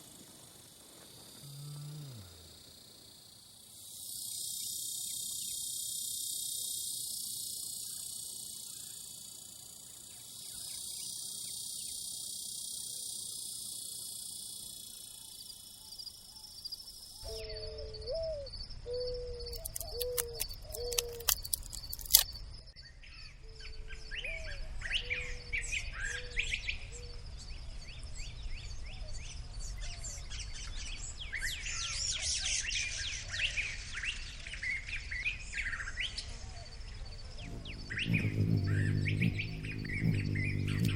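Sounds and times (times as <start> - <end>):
wild birds calling: 19.4 - 22.3, 37.4 - 40.9.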